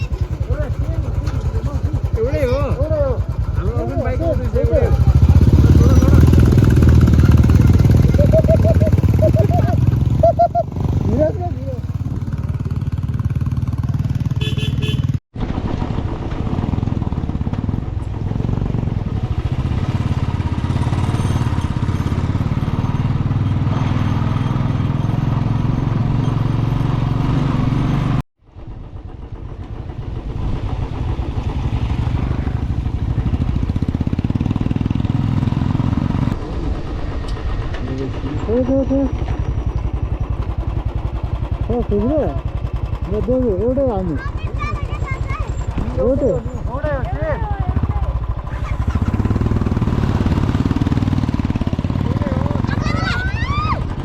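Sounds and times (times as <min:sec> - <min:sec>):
vehicle engine rumbling: 0:00.0 - 0:54.0.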